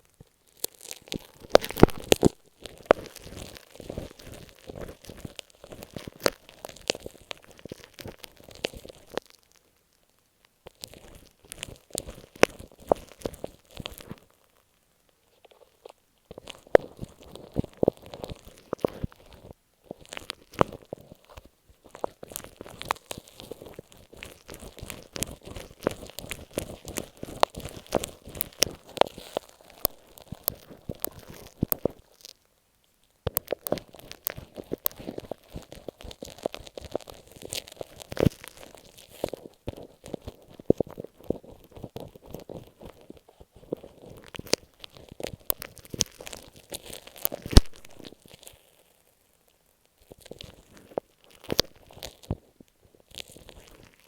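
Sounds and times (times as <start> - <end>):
tape on microphone crackling: 0.0 - 49.3, 49.9 - 54.0.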